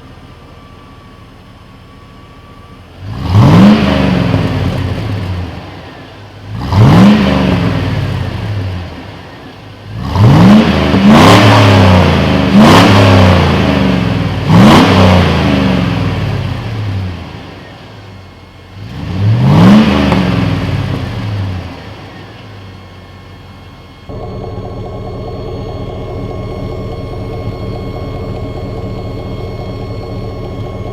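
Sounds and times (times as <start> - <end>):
engine revving: 3.0 - 22.8, 23.8 - 30.9
engine idling: 20.3 - 30.9.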